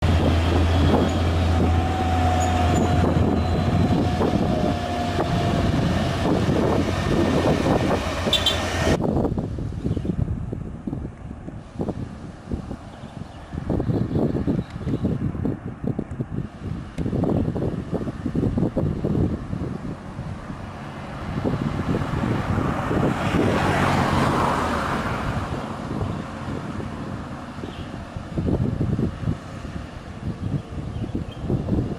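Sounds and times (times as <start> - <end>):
heavy truck engine under load: 0.0 - 9.0, 15.2 - 31.9
truck diesel engine labouring: 0.0 - 9.0.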